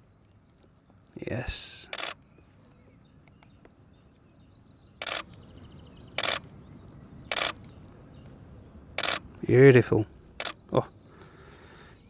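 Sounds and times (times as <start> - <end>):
camera shutter bursts: 1.9 - 2.2, 5.0 - 5.3, 6.2 - 6.4, 7.3 - 7.6, 9.0 - 9.2, 10.4 - 10.6.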